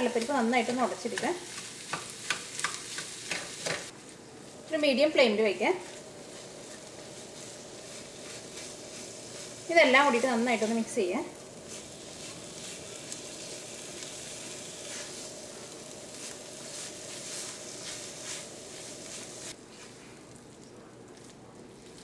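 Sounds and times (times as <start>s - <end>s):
filling sizzling in a wok: 0.0s - 22.0s
spatula scraping a pan: 11.6s - 19.6s.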